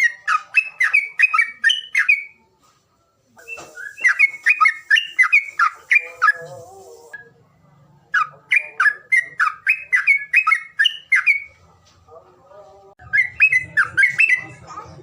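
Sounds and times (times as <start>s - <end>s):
bird whistling sharp notes: 3.4s - 6.4s, 13.1s - 14.5s.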